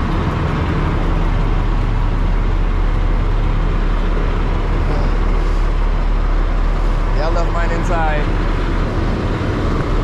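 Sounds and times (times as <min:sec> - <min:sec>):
diesel truck engine rumbling: 0:00.0 - 0:10.0.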